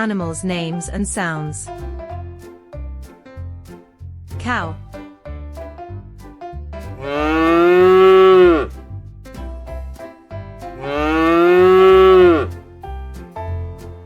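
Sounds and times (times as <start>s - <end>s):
light background music: 0.0s - 14.0s
cow mooing: 7.0s - 8.7s, 10.8s - 12.5s.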